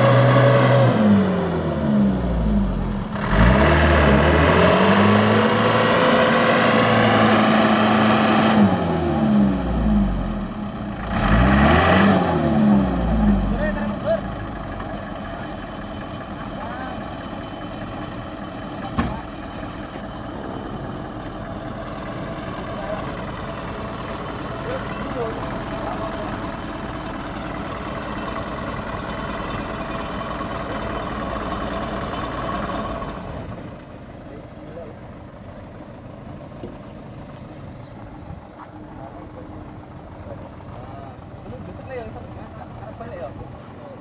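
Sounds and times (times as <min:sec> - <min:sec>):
truck diesel engine revving: 0:00.0 - 0:38.2
sharp knock: 0:19.0 - 0:19.2.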